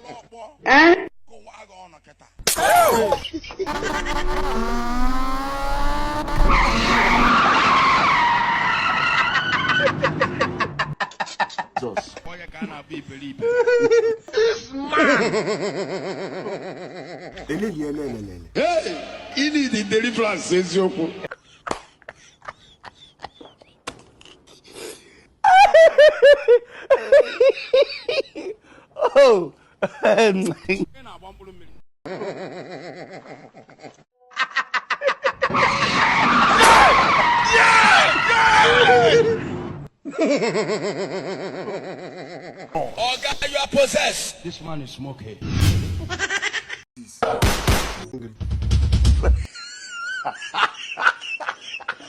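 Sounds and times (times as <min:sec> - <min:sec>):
motorcycle engine revving: 0:03.7 - 0:07.3
tyres squealing: 0:03.7 - 0:09.7
person laughing loudly: 0:15.0 - 0:18.5.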